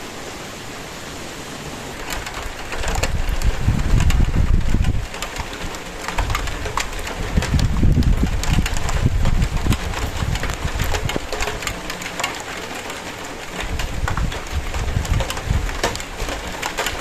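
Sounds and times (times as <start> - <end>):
rain hiss: 0.0 - 17.0
irregular crackles: 2.0 - 17.0
low rumbling thumps: 2.8 - 5.1, 6.2 - 11.3.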